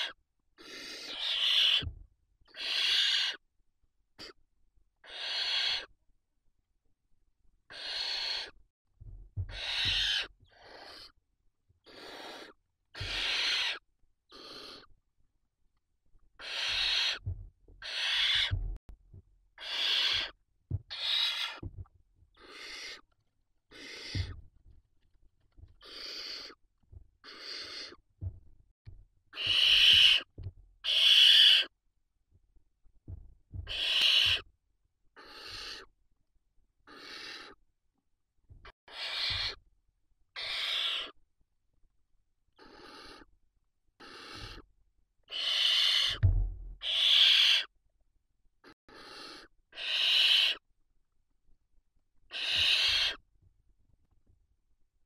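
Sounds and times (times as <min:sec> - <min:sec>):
owl chicks hissing begging calls: 0:00.0 - 0:01.9, 0:02.5 - 0:03.4, 0:05.0 - 0:05.9, 0:07.7 - 0:08.6, 0:09.5 - 0:11.2, 0:11.8 - 0:14.9, 0:16.4 - 0:17.2, 0:17.8 - 0:18.6, 0:19.6 - 0:21.6, 0:22.4 - 0:23.0, 0:23.7 - 0:24.4, 0:25.8 - 0:26.6, 0:27.2 - 0:28.0, 0:29.3 - 0:31.7, 0:33.7 - 0:34.5, 0:35.2 - 0:35.9, 0:36.9 - 0:37.6, 0:38.9 - 0:39.6, 0:40.4 - 0:41.2, 0:42.6 - 0:43.3, 0:44.0 - 0:44.7, 0:45.3 - 0:46.2, 0:46.8 - 0:47.7, 0:48.6 - 0:50.6, 0:52.3 - 0:53.2
soft low thumps: 0:09.0 - 0:10.0, 0:17.2 - 0:17.8, 0:18.4 - 0:19.3, 0:20.7 - 0:20.9, 0:21.6 - 0:21.9, 0:28.2 - 0:29.0, 0:33.1 - 0:33.8, 0:46.2 - 0:46.8.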